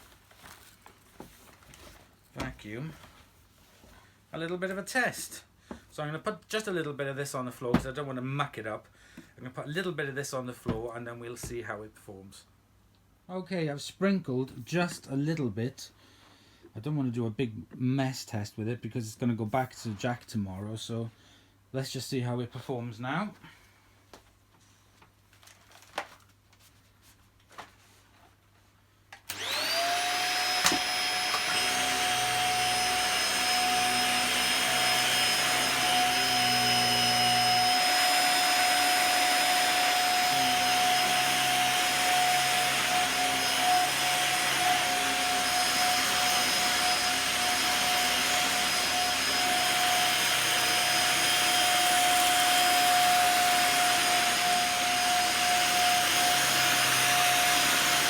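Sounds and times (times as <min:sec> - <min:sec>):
vacuum cleaner motor whining: 0:29.3 - 0:58.0.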